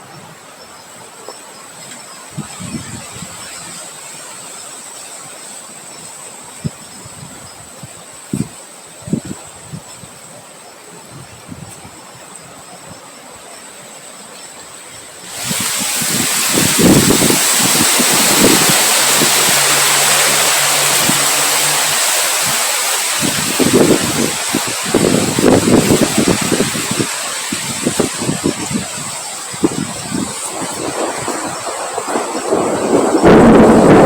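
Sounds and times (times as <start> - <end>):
wind buffeting microphone: 2.3 - 3.8, 15.2 - 34.0
strong wind hissing: 15.0 - 34.0.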